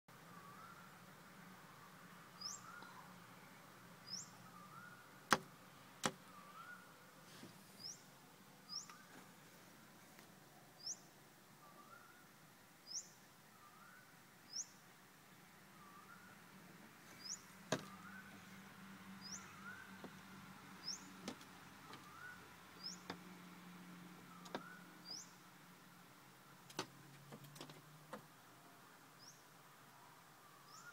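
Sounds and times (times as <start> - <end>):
small bird whistling call: 0.3 - 0.9, 2.4 - 3.1, 4.1 - 5.0, 6.3 - 6.9, 11.6 - 12.2, 12.9 - 14.8, 15.8 - 16.3, 22.0 - 23.0, 30.4 - 30.9.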